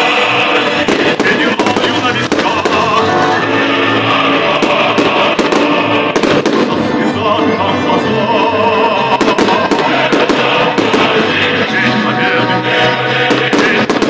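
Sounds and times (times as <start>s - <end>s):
loud music: 0.0s - 14.0s
fireworks bangs: 0.6s - 3.5s, 4.4s - 6.9s, 9.1s - 11.7s, 13.2s - 14.0s.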